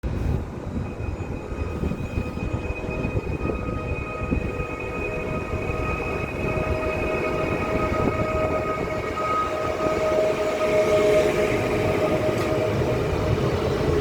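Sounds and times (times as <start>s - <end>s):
high whine: 0.0s - 14.0s
train rumbling on rails: 0.0s - 14.0s.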